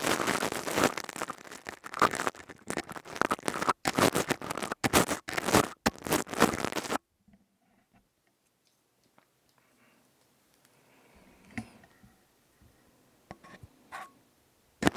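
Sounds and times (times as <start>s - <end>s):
crystal tube scratched and rubbed: 0.0s - 7.0s.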